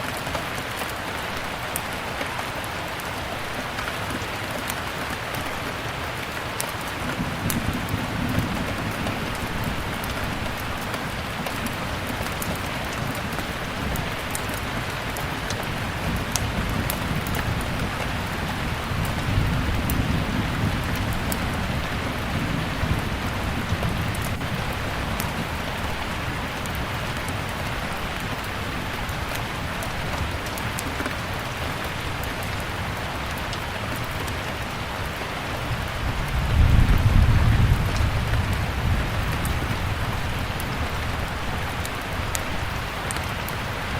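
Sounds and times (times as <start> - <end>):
steady rain: 0.0 - 43.9
fire crackling: 3.0 - 34.7, 35.7 - 43.9
thunder rumbling: 7.0 - 29.6, 35.7 - 43.9.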